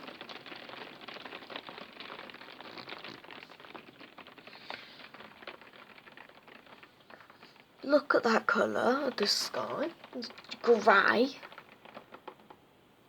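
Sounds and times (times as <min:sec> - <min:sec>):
heavy rain pattering: 0:00.0 - 0:13.0.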